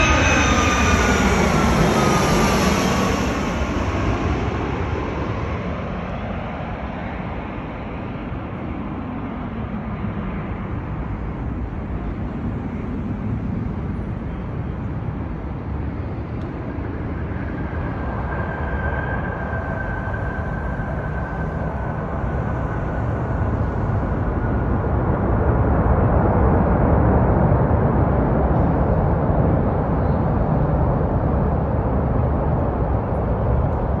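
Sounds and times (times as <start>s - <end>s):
faint high whine: 0.0s - 6.6s, 10.6s - 25.7s
jet airliner noise: 0.0s - 34.0s.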